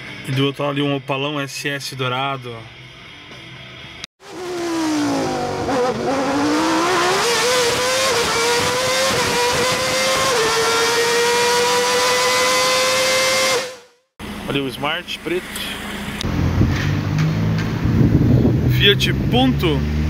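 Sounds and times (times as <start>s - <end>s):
car engine revving: 4.2s - 14.5s, 15.4s - 20.0s.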